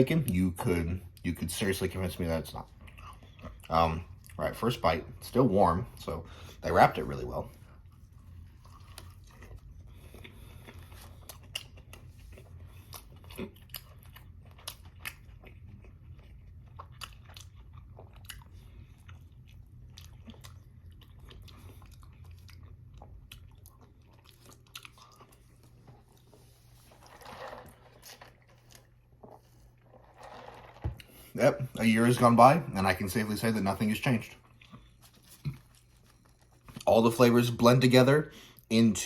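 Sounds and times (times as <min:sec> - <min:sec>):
low steady hum: 0:00.0 - 0:39.0
close chewing with wet mouth clicks: 0:07.8 - 0:26.5.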